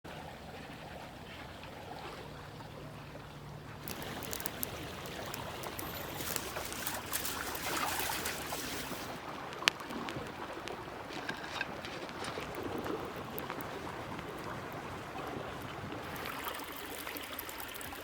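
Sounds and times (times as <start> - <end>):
rushing noise like running water: 0.1 - 18.0
small clicks: 3.8 - 8.6.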